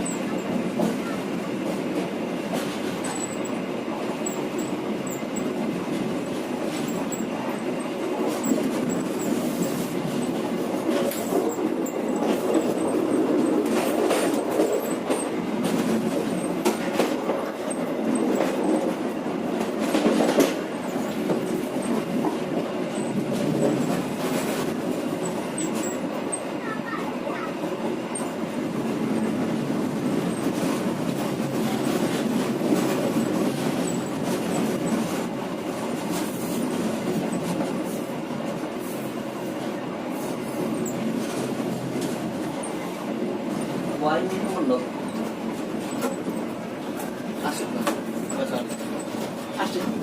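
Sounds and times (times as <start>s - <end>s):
train rumbling on track: 0.0s - 50.0s
wheels clicking over rail joints: 4.2s - 37.9s.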